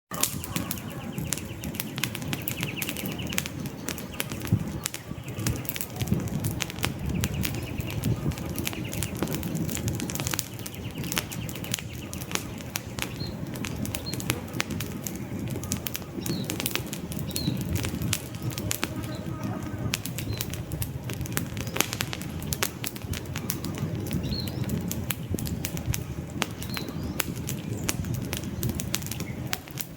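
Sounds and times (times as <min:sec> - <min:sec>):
faint high bird chirps: 0:00.1 - 0:06.2
campfire crackling and popping: 0:00.1 - 0:29.9
rush of flame: 0:00.1 - 0:29.9.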